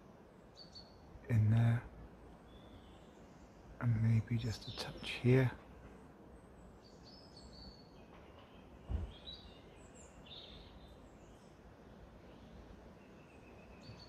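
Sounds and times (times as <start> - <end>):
small birds chirping: 0.0 - 14.0
low thump: 8.9 - 9.2.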